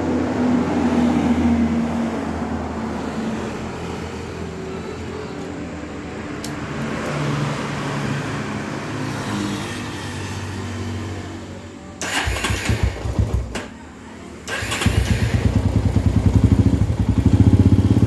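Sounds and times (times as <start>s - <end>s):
motorcycle engine running: 14.6s - 18.0s.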